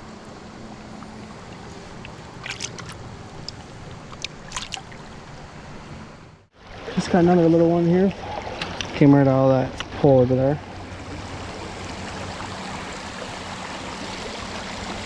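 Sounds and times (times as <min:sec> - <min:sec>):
stream water running: 0:00.0 - 0:15.0
brief sharp clicks or splashes: 0:02.0 - 0:04.9.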